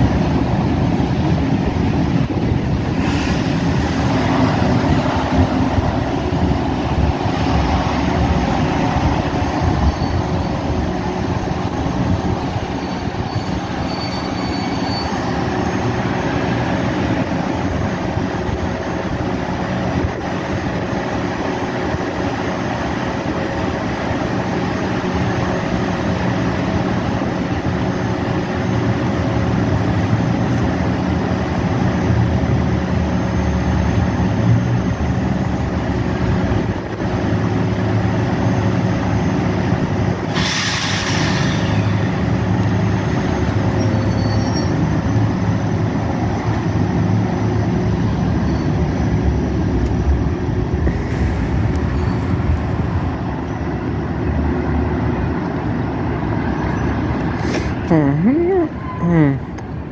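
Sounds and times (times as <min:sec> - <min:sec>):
standing train hum and rumble: 0:00.0 - 0:59.9
loud air hissing burst: 0:02.9 - 0:03.8, 0:40.2 - 0:42.3, 0:50.9 - 0:52.3, 0:57.4 - 0:57.8.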